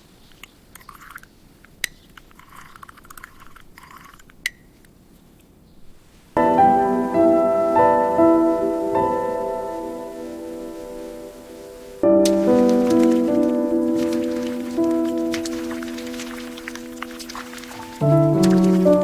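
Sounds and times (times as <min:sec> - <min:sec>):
rustles: 0:00.0 - 0:19.0
soft piano music: 0:06.4 - 0:19.0.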